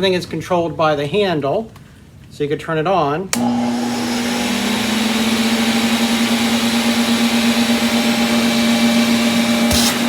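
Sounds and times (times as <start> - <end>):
vacuum cleaner running: 3.3 - 10.0.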